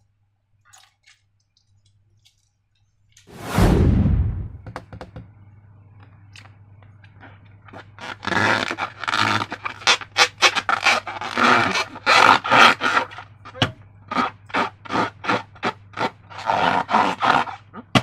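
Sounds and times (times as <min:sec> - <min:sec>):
low steady hum: 0:01.9 - 0:08.0.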